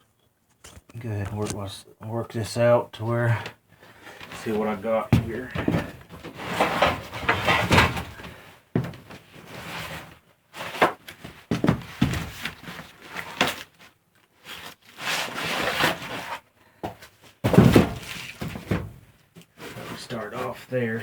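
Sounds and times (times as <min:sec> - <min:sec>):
vinyl floor tiles knocking: 0:05.1 - 0:06.0.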